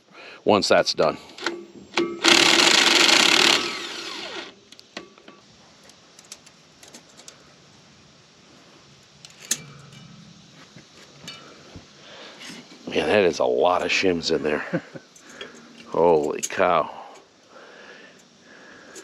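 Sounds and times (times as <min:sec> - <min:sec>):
power tool whirring: 0:02.2 - 0:04.6.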